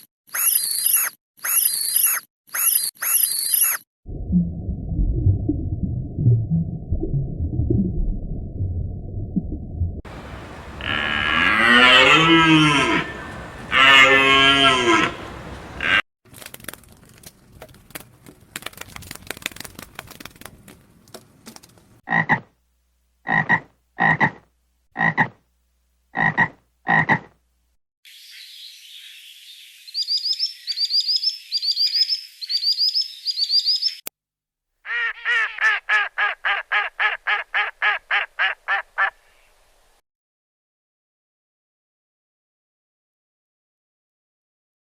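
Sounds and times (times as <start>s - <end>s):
high chirping: 28.1s - 34.0s.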